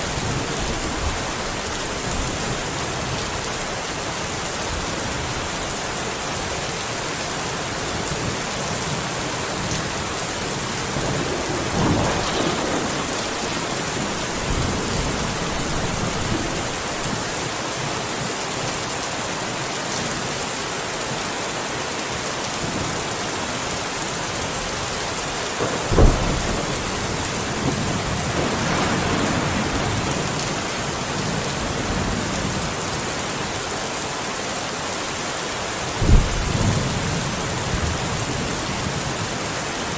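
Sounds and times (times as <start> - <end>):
heavy rain falling: 0.0 - 39.9
thunder rumbling and cracking: 9.5 - 17.5, 25.6 - 33.1, 36.0 - 39.3.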